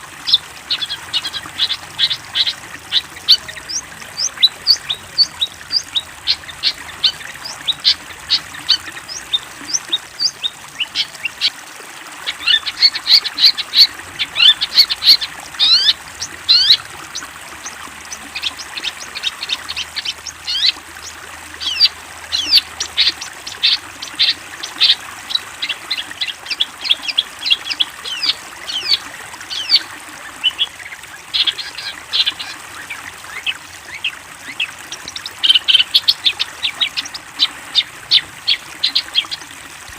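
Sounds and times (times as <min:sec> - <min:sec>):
bird high chattering song: 0:00.0 - 0:11.6, 0:12.2 - 0:39.5.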